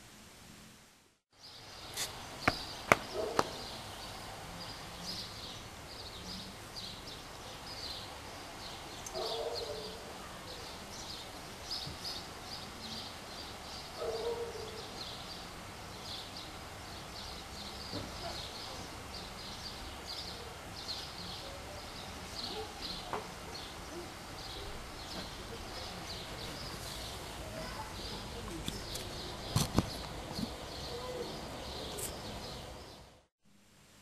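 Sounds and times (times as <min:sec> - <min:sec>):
small birds chirping: 0:01.4 - 0:33.2.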